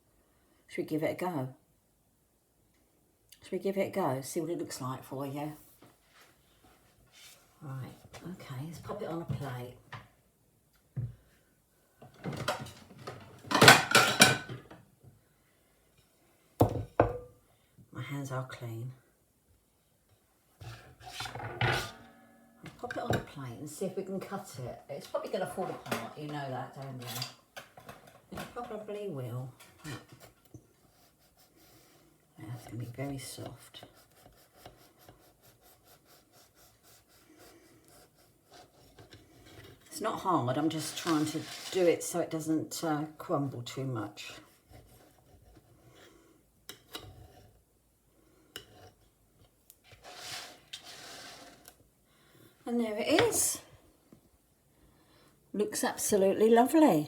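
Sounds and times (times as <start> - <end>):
crockery and cutlery clattering: 13.5 - 14.6.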